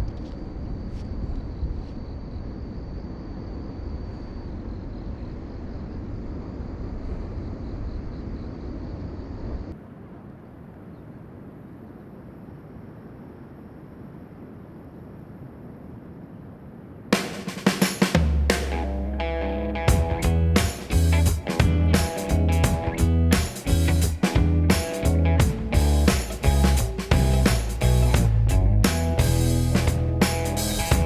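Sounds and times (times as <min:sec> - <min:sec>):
low outdoor rumbling: 0:18.1 - 0:31.0.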